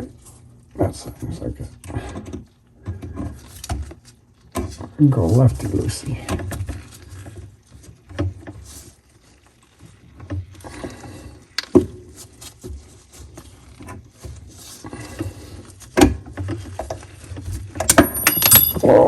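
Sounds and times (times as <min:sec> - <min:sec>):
metal tool clicks and knocks: 0:17.9 - 0:18.9
sharp metal clink: 0:17.9 - 0:19.0.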